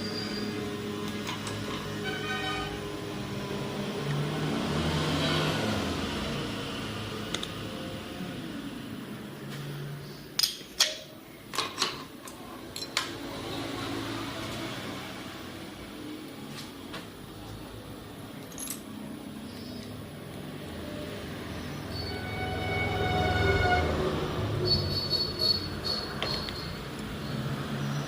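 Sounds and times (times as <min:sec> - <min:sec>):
metal tools clinking: 0:10.4 - 0:13.0, 0:18.4 - 0:19.0, 0:24.7 - 0:26.8
pitched whine: 0:21.0 - 0:26.9.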